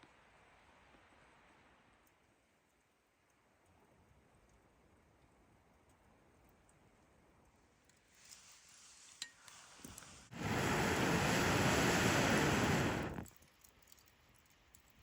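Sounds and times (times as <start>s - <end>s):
fire crackling: 7.5s - 15.0s
air blown onto campfire: 8.2s - 13.3s.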